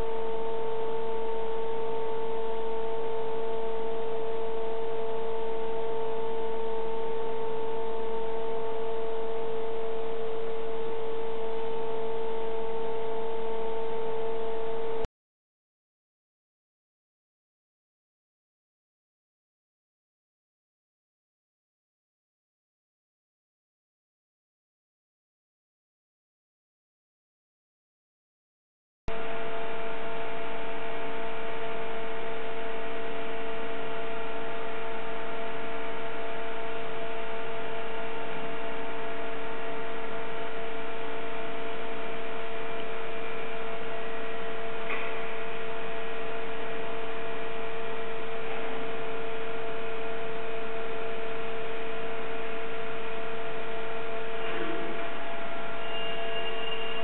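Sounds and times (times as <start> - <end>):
steady electric hum: 0.0 - 15.1, 29.1 - 57.0.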